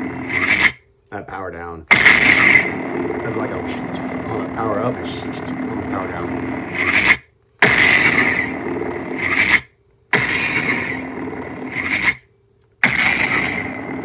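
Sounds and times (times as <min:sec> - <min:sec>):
lightsaber powering down: 0:01.9 - 0:09.5
lightsaber igniting and humming: 0:01.9 - 0:09.6.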